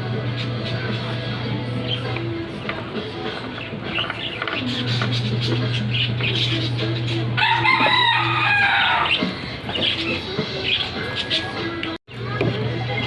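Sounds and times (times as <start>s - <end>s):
rooster crowing: 7.4s - 9.2s.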